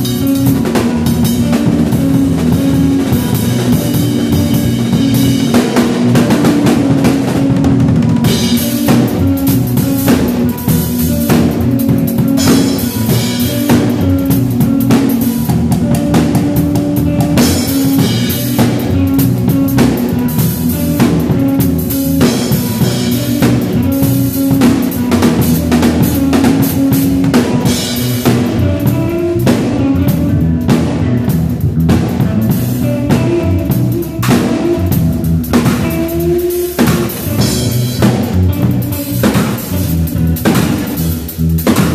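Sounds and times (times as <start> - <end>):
drum kit beat: 0.0 - 41.9
sustained bass notes: 0.0 - 41.9
sustained guitar notes: 0.0 - 41.9.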